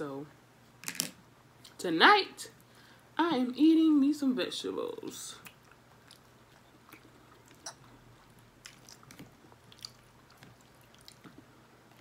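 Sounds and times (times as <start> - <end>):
chewing noodles: 5.4 - 12.0.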